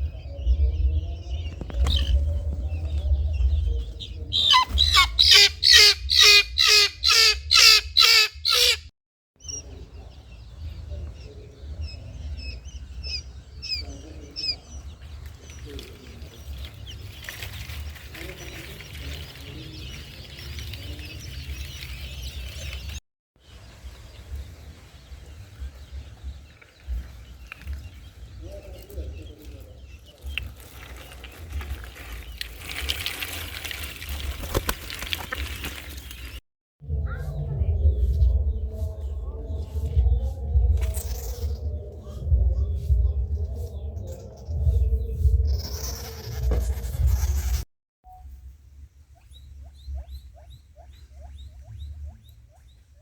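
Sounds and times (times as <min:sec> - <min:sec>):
steady low rumble: 0:00.0 - 0:06.6, 0:36.8 - 0:47.6
bird calling loudly: 0:04.3 - 0:08.9
faint bird chirping: 0:09.4 - 0:33.0, 0:35.3 - 0:53.0.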